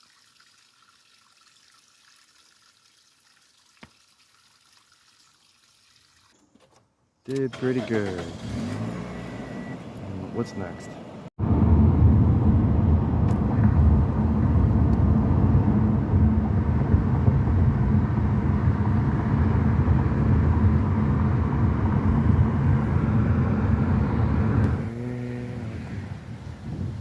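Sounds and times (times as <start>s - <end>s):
car road and engine rumble: 7.3s - 27.0s.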